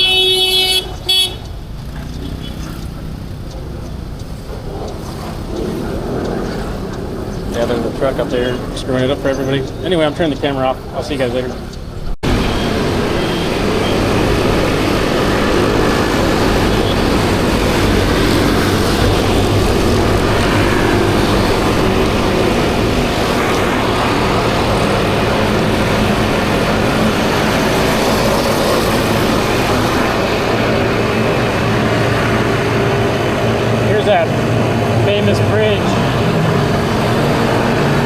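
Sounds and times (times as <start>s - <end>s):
scooter engine drone: 0.0s - 38.0s
wind rush: 12.2s - 38.0s.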